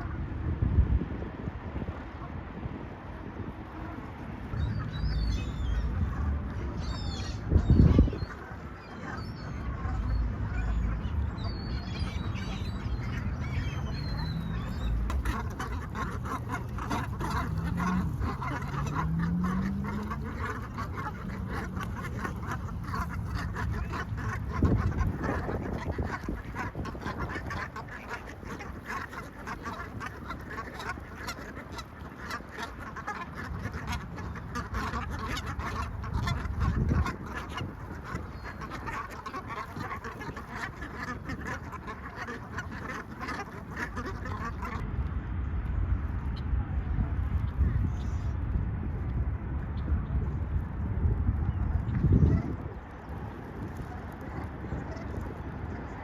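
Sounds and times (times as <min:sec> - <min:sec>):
ducks quacking: 0:03.8 - 0:44.8
low rumble: 0:04.5 - 0:27.2, 0:44.4 - 0:53.3.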